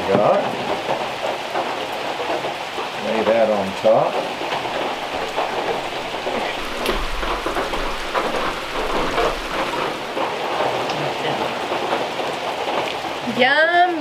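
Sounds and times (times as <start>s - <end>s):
steady rain falling: 0.0s - 14.0s
low rumble: 4.7s - 10.2s.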